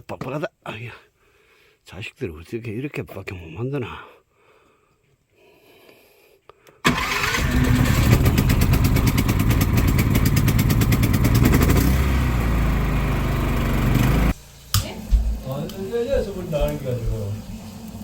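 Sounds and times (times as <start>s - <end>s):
small petrol engine running: 6.9s - 14.4s.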